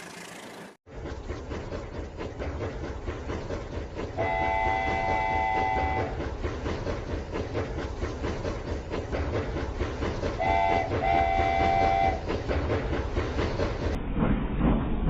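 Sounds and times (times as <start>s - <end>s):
toy train whistle toots: 4.2s - 6.2s, 10.4s - 12.2s.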